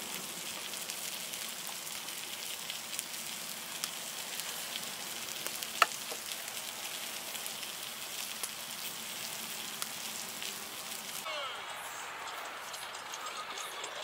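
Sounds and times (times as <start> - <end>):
campfire crackling and hissing: 0.0 - 14.0
small pops: 5.4 - 6.4.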